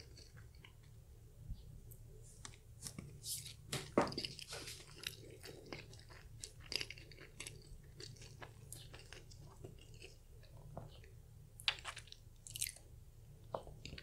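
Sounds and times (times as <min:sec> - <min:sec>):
chewing flaky pastry: 0:00.0 - 0:14.0.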